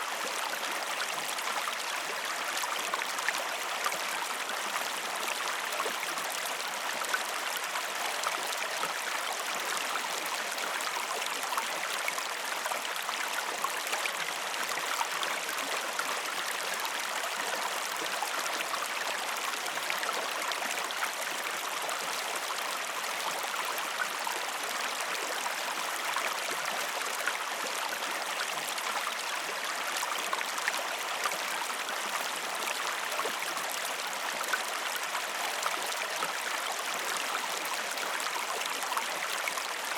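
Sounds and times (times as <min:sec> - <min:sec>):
stream water over stones: 0:00.0 - 0:39.9.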